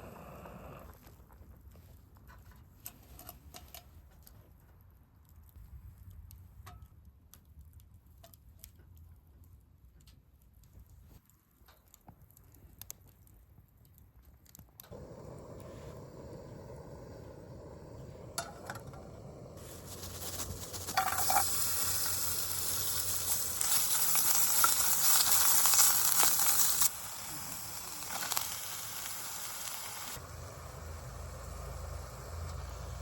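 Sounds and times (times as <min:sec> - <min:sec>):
food sizzling in a pan: 0:14.9 - 0:33.0
cookware clinking: 0:20.9 - 0:21.7.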